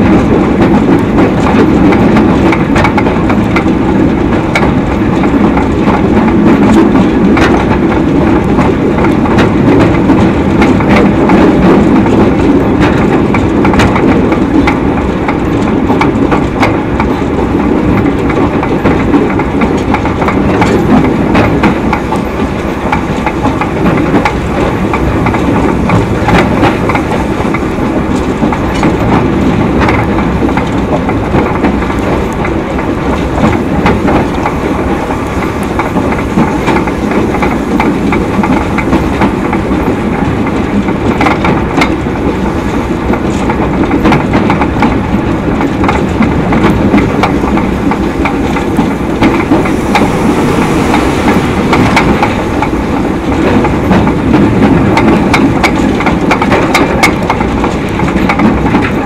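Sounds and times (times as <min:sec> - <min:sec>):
steam train rumbling: 0:00.0 - 0:59.0
wheels clicking over rail joints: 0:00.0 - 0:59.0.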